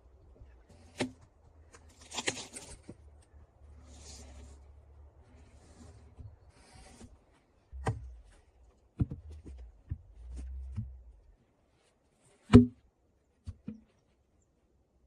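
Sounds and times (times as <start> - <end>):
knocks and thuds: 7.7 - 8.4.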